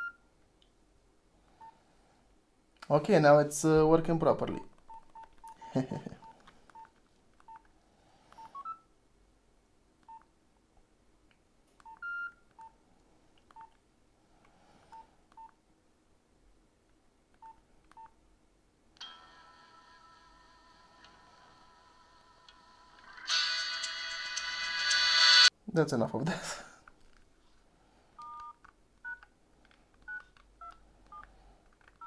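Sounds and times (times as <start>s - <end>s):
phone keypad beeps: 0.0s - 0.2s, 30.1s - 31.3s.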